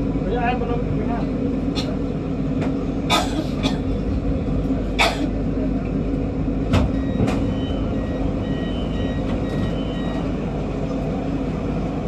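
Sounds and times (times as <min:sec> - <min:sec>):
electric train hum: 0:00.0 - 0:12.0
two-tone electronic beeping: 0:07.0 - 0:10.3.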